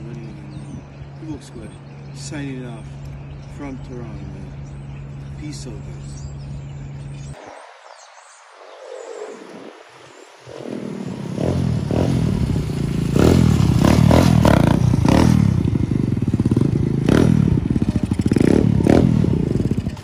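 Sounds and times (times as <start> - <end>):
dirt bike engine revving: 10.4 - 20.0.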